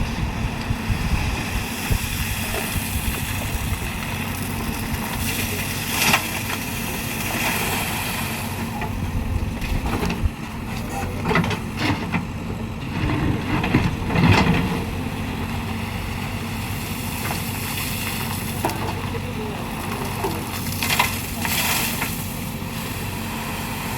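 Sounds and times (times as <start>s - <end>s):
heavy diesel machinery running: 0.0s - 23.9s.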